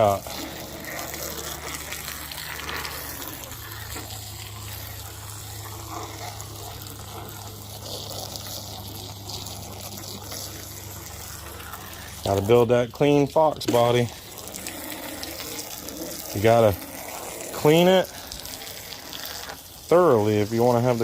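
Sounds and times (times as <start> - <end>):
water running: 0.0 - 21.0.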